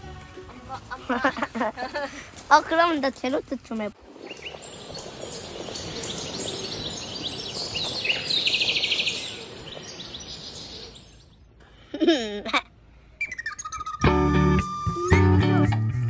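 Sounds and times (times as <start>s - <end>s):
steady high hiss: 4.0s - 11.4s
bird rapid trill: 4.1s - 11.4s
bird chirps and calls: 4.2s - 11.4s.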